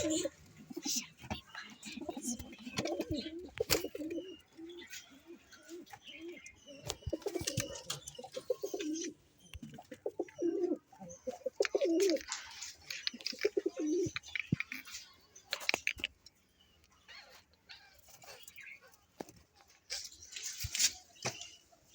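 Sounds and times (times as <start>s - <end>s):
pigeons cooing: 0.0s - 14.6s
birds chirping and twittering: 0.0s - 21.9s.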